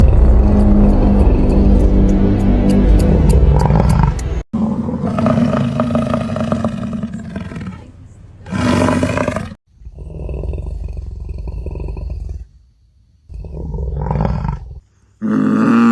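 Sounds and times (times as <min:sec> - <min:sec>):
wild animal roaring: 0:02.9 - 0:07.9, 0:08.5 - 0:12.5, 0:13.3 - 0:15.9.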